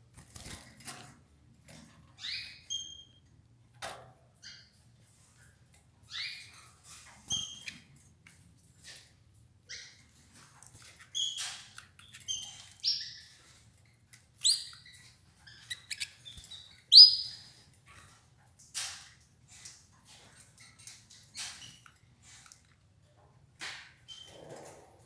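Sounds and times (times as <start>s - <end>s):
canaries chirping: 2.2s - 3.3s, 6.0s - 7.8s, 9.6s - 22.0s, 24.0s - 24.6s.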